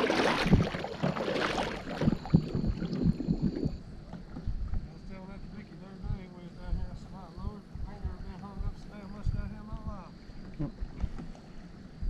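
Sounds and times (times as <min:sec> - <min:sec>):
low thumps: 0:00.0 - 0:04.9
water splashing around kayak: 0:00.0 - 0:05.8, 0:10.1 - 0:12.0
wind buffeting microphone: 0:00.0 - 0:11.2.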